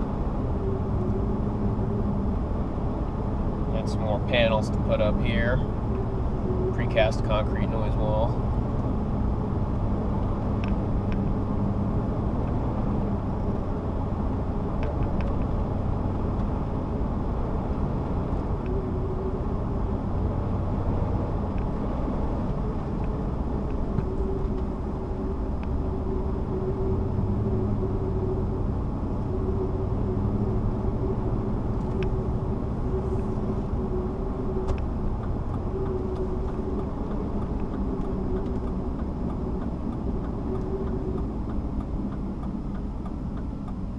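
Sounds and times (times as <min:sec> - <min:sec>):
car road and engine rumble: 0:00.0 - 0:43.9.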